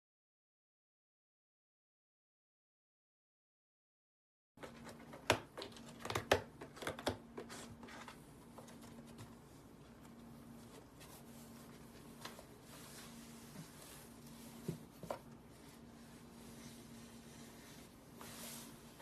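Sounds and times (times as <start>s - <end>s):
steady low electrical hum: 4.6s - 19.0s.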